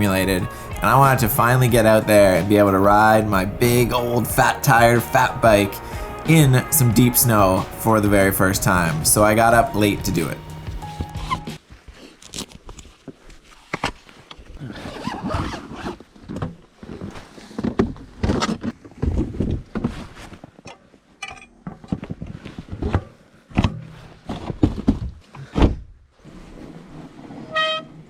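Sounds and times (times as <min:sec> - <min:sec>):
brakes squealing: 0:00.0 - 0:11.6
bike rattling: 0:00.0 - 0:11.7
bike tyres crunching through snow: 0:00.0 - 0:20.6.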